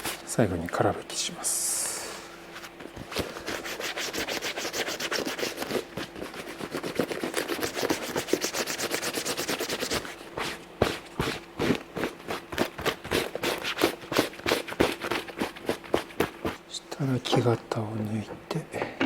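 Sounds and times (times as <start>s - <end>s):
cloth rubbing on leather: 2.3s - 16.6s.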